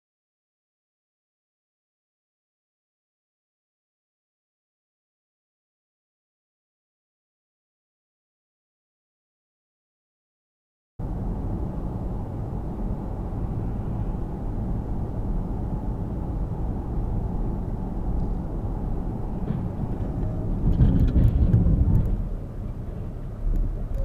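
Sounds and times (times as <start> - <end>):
car engine and tyre rumble: 11.0 - 24.0.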